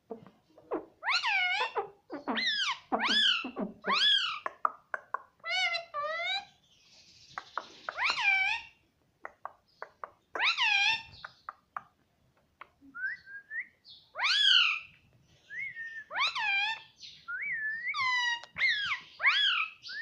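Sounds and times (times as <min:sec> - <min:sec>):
parrot calling: 0:00.7 - 0:04.6, 0:07.9 - 0:08.8, 0:10.4 - 0:11.2, 0:14.2 - 0:14.9, 0:16.1 - 0:16.9, 0:17.9 - 0:19.9.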